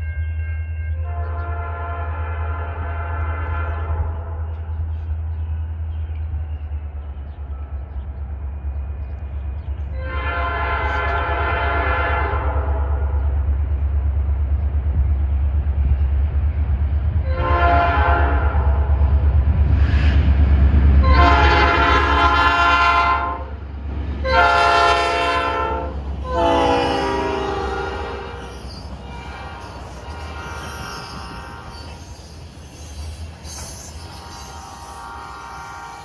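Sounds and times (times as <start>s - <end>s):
train air horn blasts: 0.3s - 4.7s, 9.9s - 13.1s, 17.2s - 19.0s, 21.0s - 23.6s, 24.2s - 32.9s, 33.7s - 36.0s.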